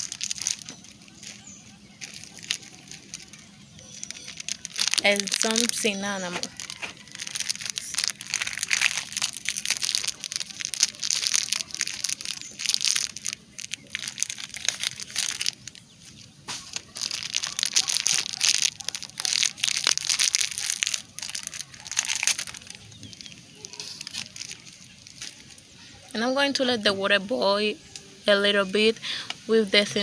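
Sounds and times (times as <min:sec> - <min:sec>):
crunching and crinkling: 0:00.0 - 0:30.0
speech: 0:05.0 - 0:06.6, 0:25.8 - 0:30.0.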